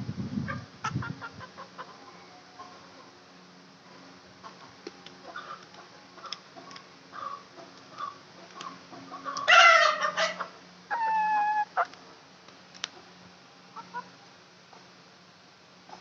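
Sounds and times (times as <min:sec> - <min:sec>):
chickens clucking softly: 0:04.4 - 0:12.0
chicken harsh squawk: 0:09.2 - 0:11.9
chicken held call: 0:09.3 - 0:11.9.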